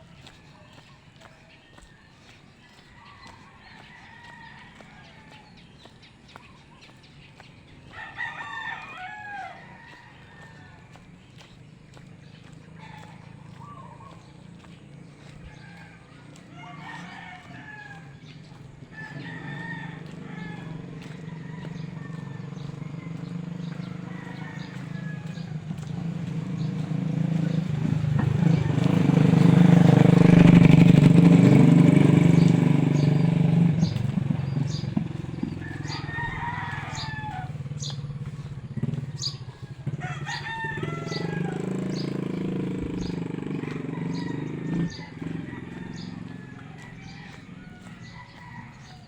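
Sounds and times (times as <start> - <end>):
motorcycle engine running: 0.0 - 49.0
rooster crowing: 2.8 - 5.7, 7.9 - 11.0, 12.7 - 49.0.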